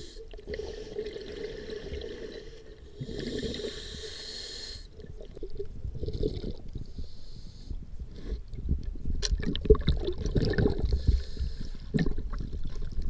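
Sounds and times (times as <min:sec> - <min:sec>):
diver breathing through regulator: 0:00.0 - 0:05.0, 0:06.2 - 0:08.4, 0:10.8 - 0:12.0
bubbling of exhaled air: 0:00.0 - 0:07.2, 0:08.1 - 0:13.0.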